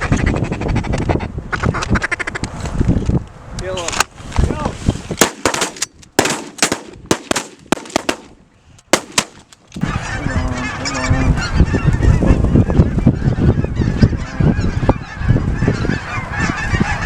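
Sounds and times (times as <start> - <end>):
shotgun shots: 5.2 - 9.5
flock of geese honking: 9.8 - 17.0.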